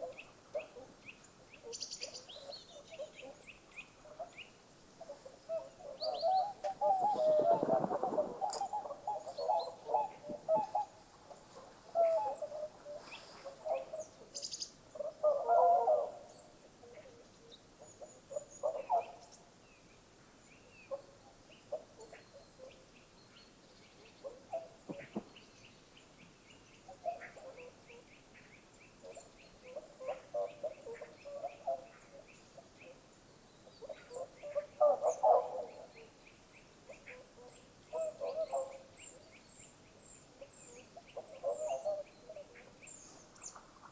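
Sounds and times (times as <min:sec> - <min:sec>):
low chattering bird calls: 0:00.0 - 0:15.6, 0:24.0 - 0:25.8.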